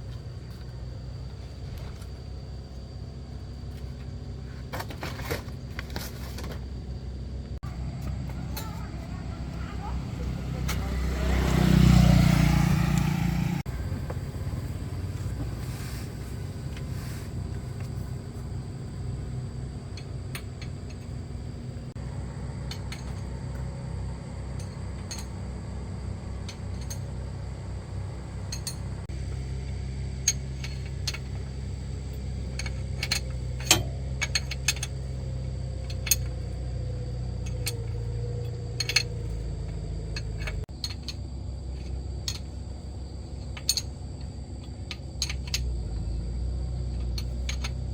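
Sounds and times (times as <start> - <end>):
low mechanical hum: 0.0 - 47.9
light metallic clinks: 16.8 - 47.9.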